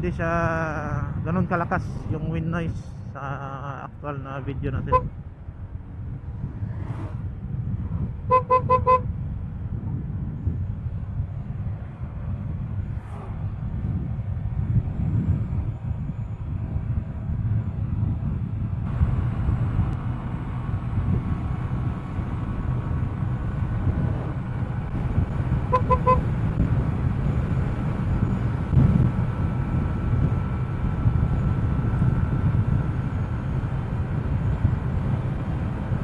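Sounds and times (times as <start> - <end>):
motorcycle rumble: 4.6 - 36.0
wind buffeting: 4.9 - 36.0
vehicle horn beeps: 8.3 - 9.0, 25.6 - 26.4.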